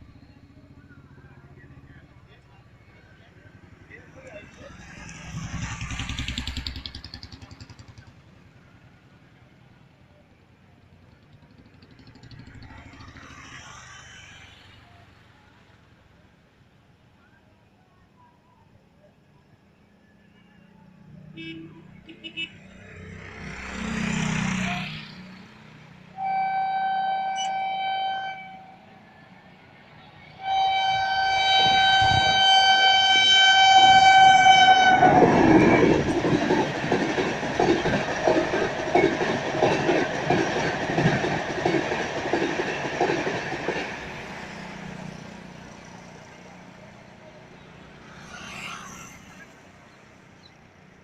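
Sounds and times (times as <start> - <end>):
train passing with loud rushing: 0.0 - 17.2, 22.0 - 51.0
wheels clacking over rail joints: 4.2 - 8.2, 31.2 - 46.8
train horn blasts: 26.2 - 28.8, 30.4 - 35.9.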